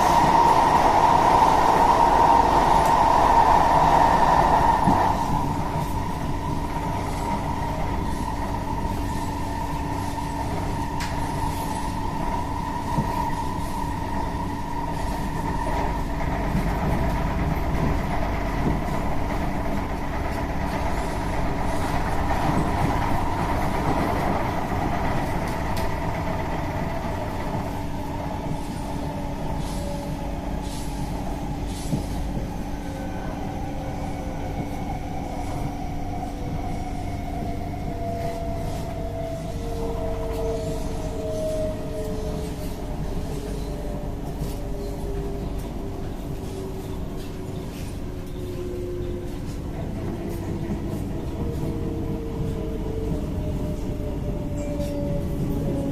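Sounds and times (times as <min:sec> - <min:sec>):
train wheels rumbling on rail: 0:00.0 - 0:55.9.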